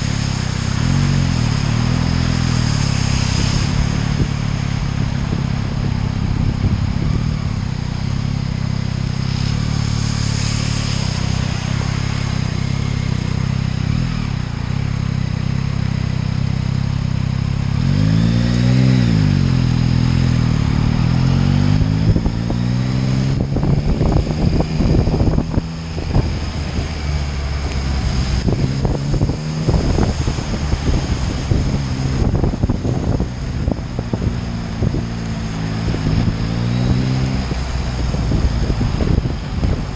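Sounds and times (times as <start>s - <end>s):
motorcycle engine running: 0.0s - 39.9s
choppy rough noise: 17.8s - 39.9s.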